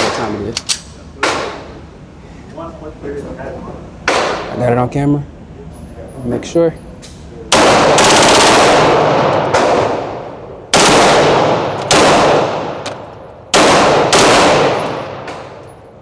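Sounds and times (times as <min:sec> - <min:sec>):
pistol shots echoing: 0:07.5 - 0:15.7.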